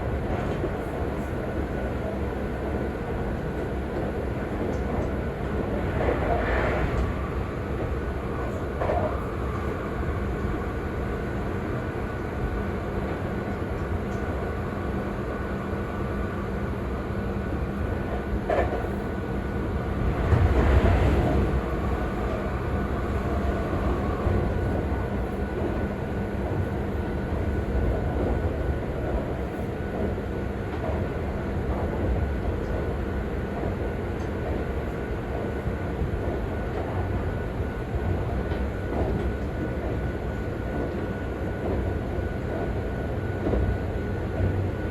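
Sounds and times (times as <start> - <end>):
train wheels rumbling on rails: 0.0 - 44.9
train motor hum: 18.1 - 28.6.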